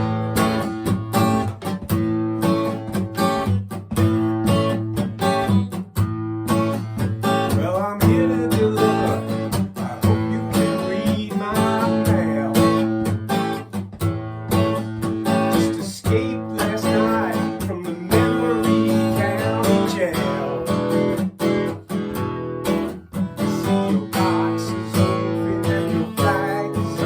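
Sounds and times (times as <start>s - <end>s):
acoustic guitar strumming: 0.0s - 27.0s
bending guitar melody: 0.0s - 27.0s.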